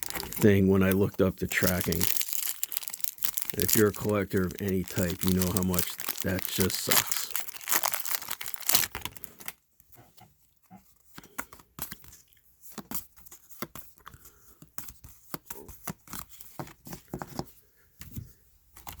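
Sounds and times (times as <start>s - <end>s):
card wrappers crinkling: 0.0s - 9.5s.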